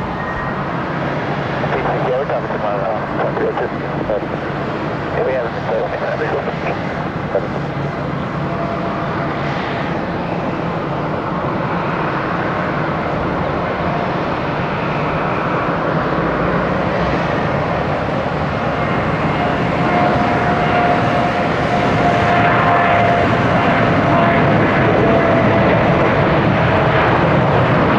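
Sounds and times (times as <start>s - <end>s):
jet engines rushing: 0.0s - 27.9s.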